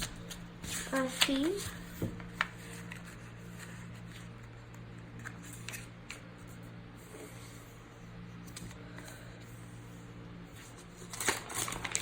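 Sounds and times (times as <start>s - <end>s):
paper rustling and crackling: 0.0s - 6.6s, 10.5s - 12.0s
low steady hum: 0.0s - 12.0s.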